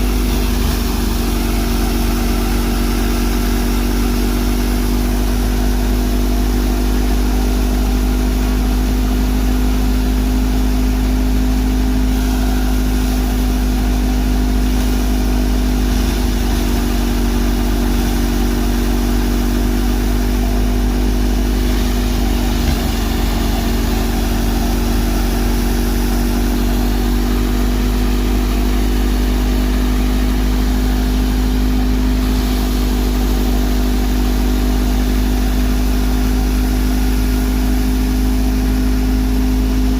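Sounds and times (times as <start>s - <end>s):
thresher drum and fan spinning: 0.0s - 39.9s
tractor diesel engine: 0.0s - 39.9s.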